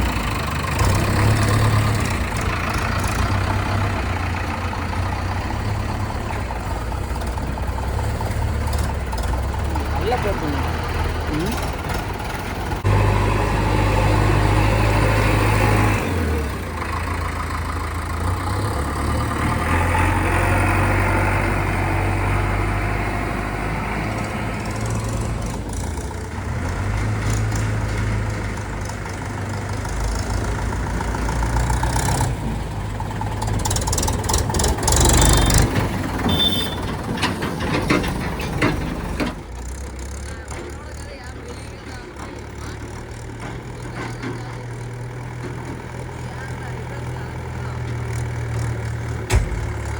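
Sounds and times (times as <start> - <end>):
diesel engine under load: 0.0 - 49.9
clattering knocks: 34.0 - 39.7, 49.1 - 49.9.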